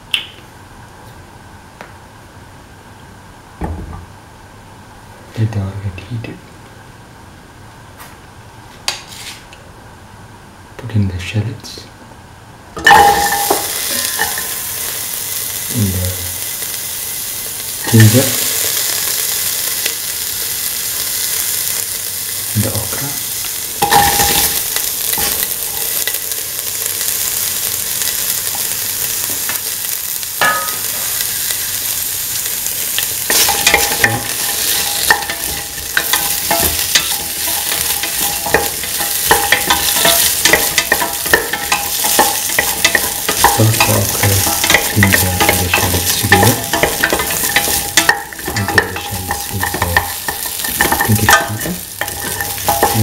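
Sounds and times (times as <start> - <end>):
food sizzling in hot oil: 12.8 - 53.0
utensil scraping pan: 33.3 - 53.0.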